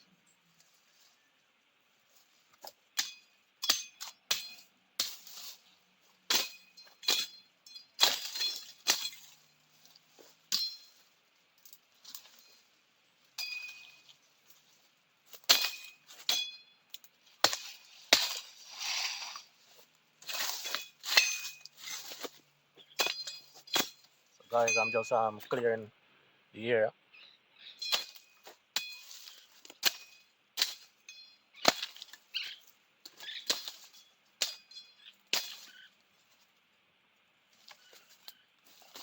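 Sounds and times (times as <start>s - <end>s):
machete chopping brush: 2.6s - 5.6s, 6.3s - 7.4s, 8.0s - 9.4s, 15.3s - 16.6s, 17.4s - 19.5s, 23.0s - 24.1s, 27.8s - 31.0s, 31.6s - 32.2s, 33.1s - 34.6s, 35.3s - 35.9s.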